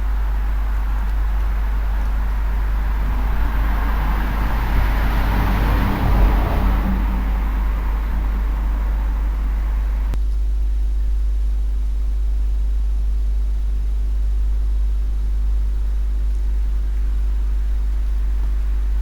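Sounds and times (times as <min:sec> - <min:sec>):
low rumble: 0:00.0 - 0:10.2
faint hum tones: 0:00.0 - 0:19.0.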